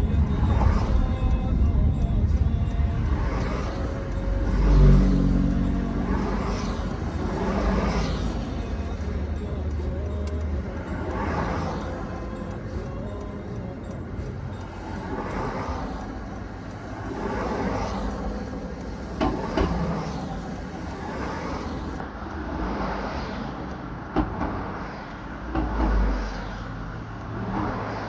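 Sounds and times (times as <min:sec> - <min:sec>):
low rumble: 0:00.0 - 0:22.0
road vehicle noise: 0:00.0 - 0:28.0.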